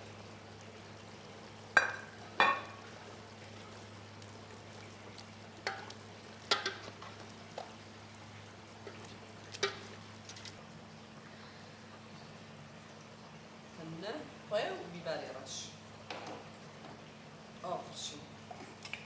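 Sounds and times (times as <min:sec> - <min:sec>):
vegetables frying in a pan: 0:00.0 - 0:11.2
spoon knocking against pan: 0:01.8 - 0:02.8.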